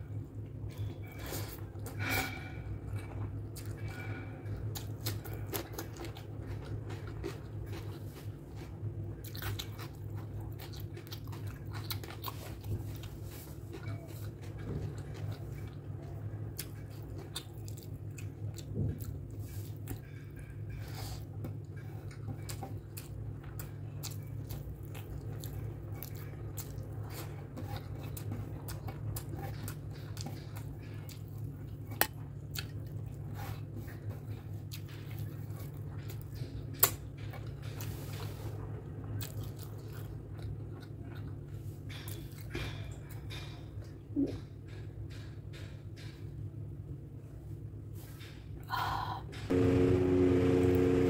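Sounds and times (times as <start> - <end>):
wet chewing mouth sounds: 0.7 - 43.2
steady low hum: 43.8 - 51.0.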